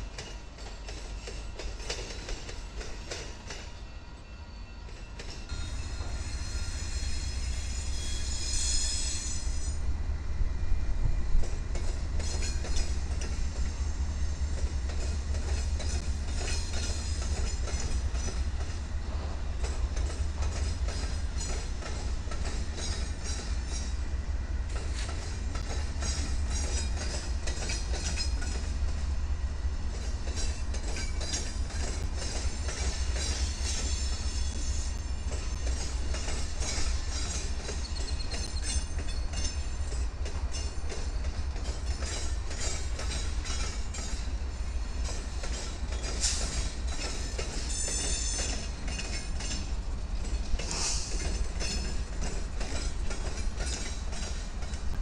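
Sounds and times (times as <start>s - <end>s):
wheels clacking over rail joints: 0.0s - 3.7s, 11.4s - 13.8s, 14.5s - 29.1s, 29.8s - 55.0s
diesel locomotive engine rumble: 0.0s - 55.0s
high-pitched wheel squeal: 4.3s - 9.8s.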